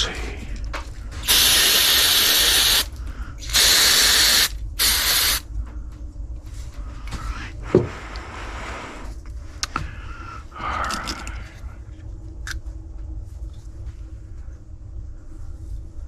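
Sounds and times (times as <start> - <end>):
hissing spray: 1.2 - 5.4.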